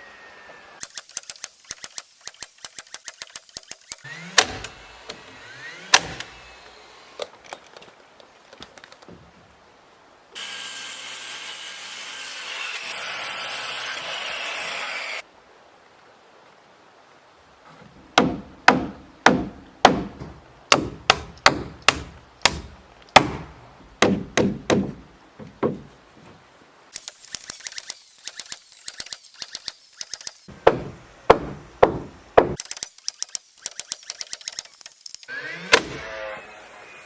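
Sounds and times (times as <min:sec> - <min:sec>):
rapid fine clicking: 0:00.8 - 0:04.0, 0:26.9 - 0:30.5, 0:32.6 - 0:35.3.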